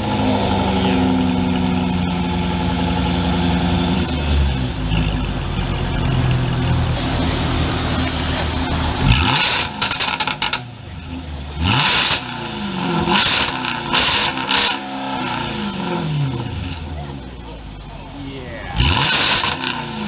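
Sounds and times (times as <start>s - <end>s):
car engine revving: 0.0s - 20.0s
exhaust crackles and pops: 4.9s - 14.8s, 18.8s - 20.0s.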